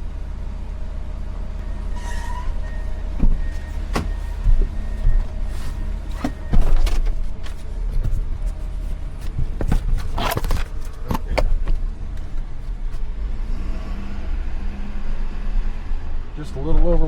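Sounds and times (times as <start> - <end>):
truck engine rumbling: 0.0 - 17.0
rattles and knocks: 2.8 - 13.0.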